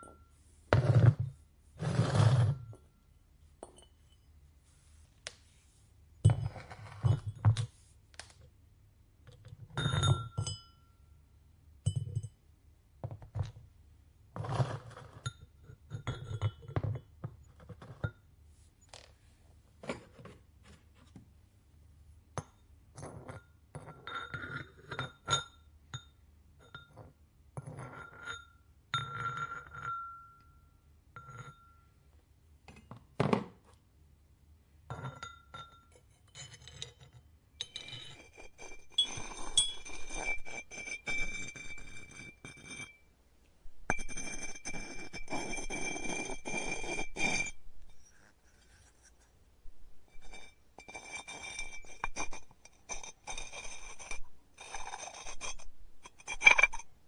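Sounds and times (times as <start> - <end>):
ceramic pieces clinking: 37.6 - 43.0.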